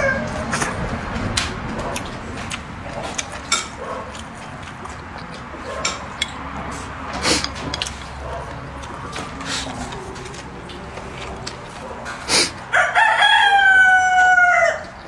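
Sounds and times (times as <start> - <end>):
wet chewing: 0.4 - 12.8
chopsticks clicking on ceramic bowl: 2.0 - 6.5.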